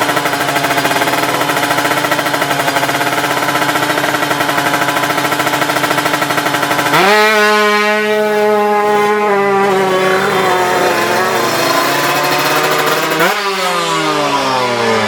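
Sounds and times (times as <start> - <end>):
two-stroke engine at high revs: 0.0 - 15.0.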